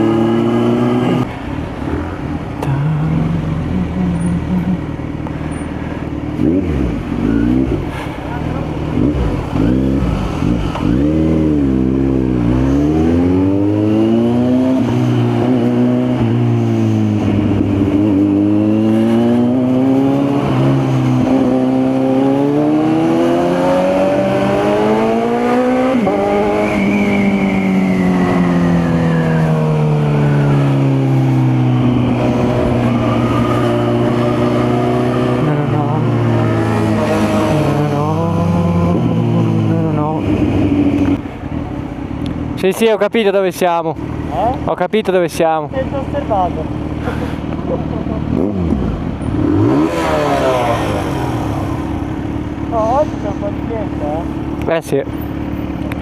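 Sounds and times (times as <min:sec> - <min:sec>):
motorcycle engine accelerating: 0:00.0 - 0:42.7, 0:45.7 - 0:56.0.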